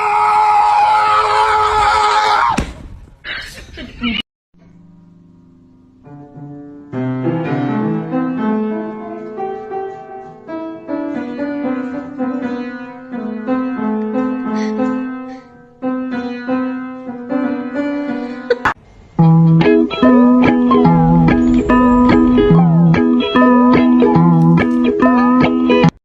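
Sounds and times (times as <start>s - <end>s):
piano melody: 5.3s - 26.0s.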